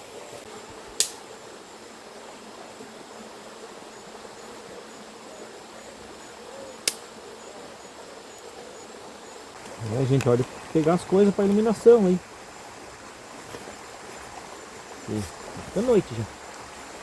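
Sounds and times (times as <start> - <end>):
insects chirping: 0.0 - 17.0
sharp clicks: 6.8 - 7.0.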